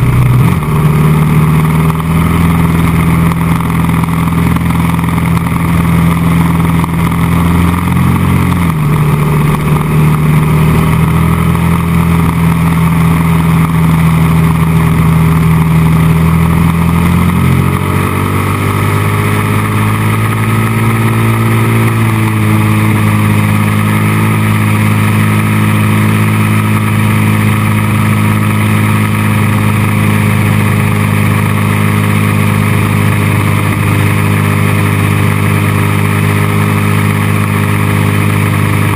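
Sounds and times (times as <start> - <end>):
motorcycle engine shifting gears: 0.0 - 38.9.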